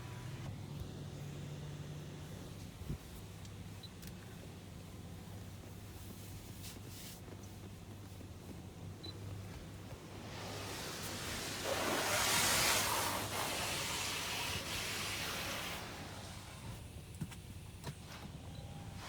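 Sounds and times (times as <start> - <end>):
water spraying over car: 10.0 - 16.8.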